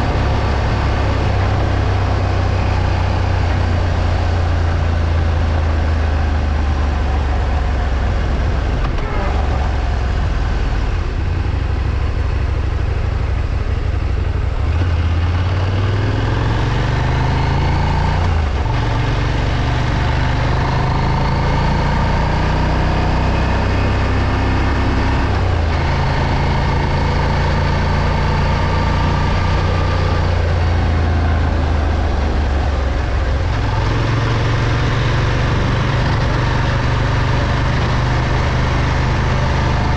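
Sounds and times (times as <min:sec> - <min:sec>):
motorcycle engine accelerating: 0:00.0 - 0:39.9
road and wind rush: 0:00.0 - 0:39.9.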